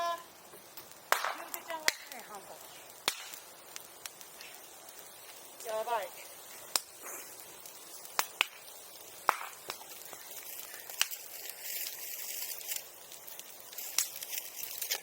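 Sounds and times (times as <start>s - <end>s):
bonfire crackling: 0.0s - 15.0s
burning wood popping: 0.0s - 15.0s
steady hiss of fire: 0.0s - 15.0s.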